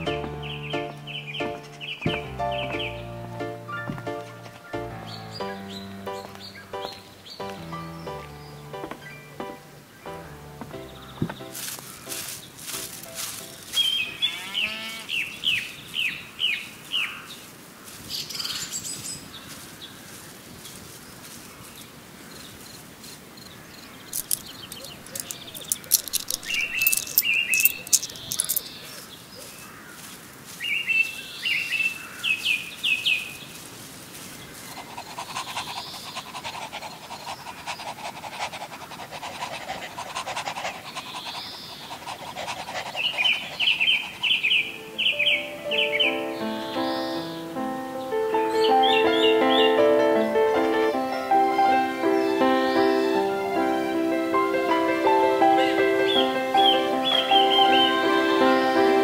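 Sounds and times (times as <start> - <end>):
birds chirping: 0.0 - 17.2, 23.4 - 30.0, 34.4 - 38.1, 39.9 - 51.3, 55.6 - 59.0.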